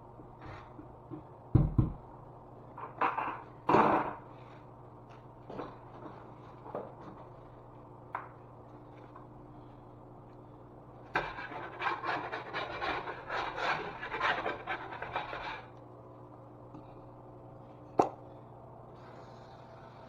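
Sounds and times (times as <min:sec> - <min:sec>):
hand tool scraping drywall: 0:11.2 - 0:15.7.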